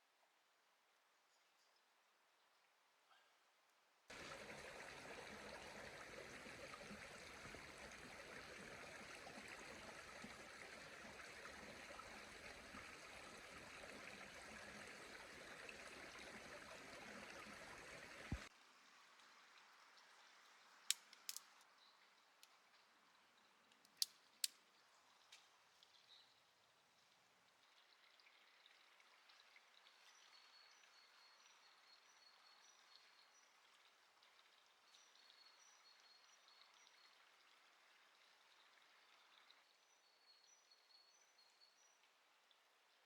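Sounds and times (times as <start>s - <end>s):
running water rushing: 4.1s - 18.5s
light clicks: 20.9s - 21.5s.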